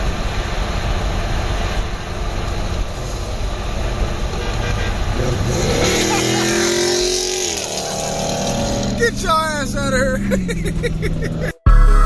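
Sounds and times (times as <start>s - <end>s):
car engine running hard: 0.0s - 11.6s
tyres screeching: 4.5s - 11.6s.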